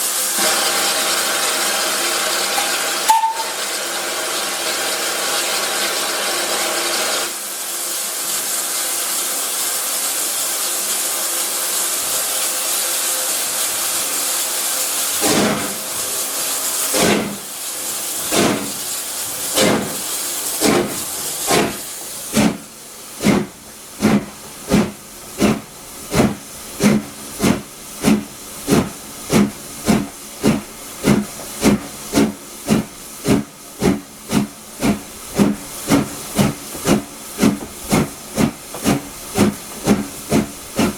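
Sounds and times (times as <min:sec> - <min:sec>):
steam locomotive hissing: 0:00.0 - 0:40.9
locomotive exhaust beats: 0:18.1 - 0:40.9.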